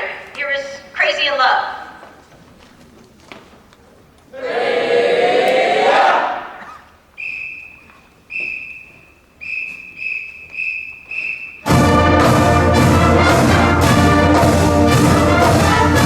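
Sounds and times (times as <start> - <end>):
people shouting together: 4.4 - 6.5
whistle blasts: 7.1 - 12.5.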